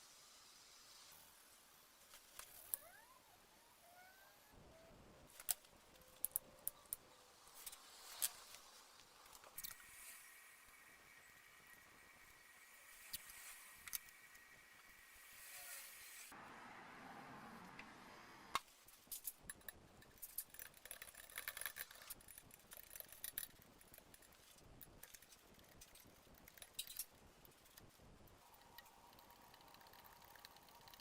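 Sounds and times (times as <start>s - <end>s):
small metal parts clinking: 19.0s - 27.8s.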